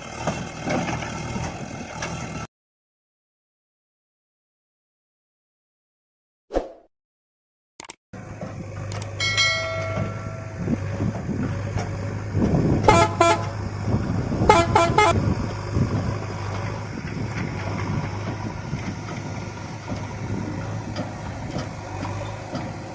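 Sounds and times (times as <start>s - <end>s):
low vehicle hum: 8.2s - 22.9s
vehicle horn tooting: 12.8s - 13.6s, 14.4s - 15.2s.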